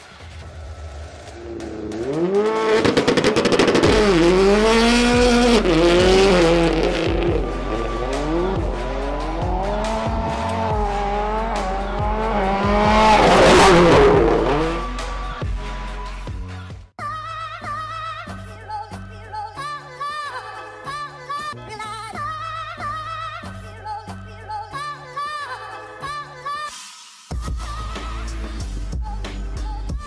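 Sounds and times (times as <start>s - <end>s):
car engine revving hard: 1.5s - 15.0s.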